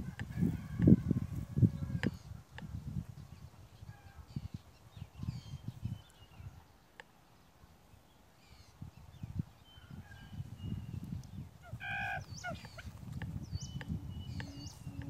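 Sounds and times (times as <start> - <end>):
small birds whistling and chirping: 8.4 - 15.0.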